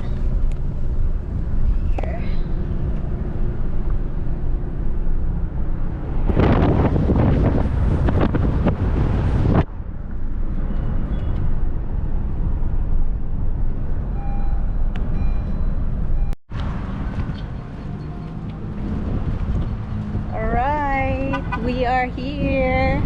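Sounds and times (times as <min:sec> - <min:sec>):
car road and engine rumble: 0:00.0 - 0:23.0
wind noise on microphone: 0:04.6 - 0:14.5, 0:15.1 - 0:23.0.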